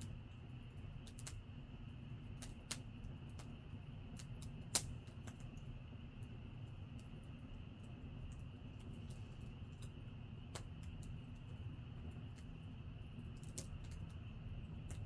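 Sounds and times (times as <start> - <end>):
campfire crackling and popping: 2.2 - 5.7, 9.7 - 15.0.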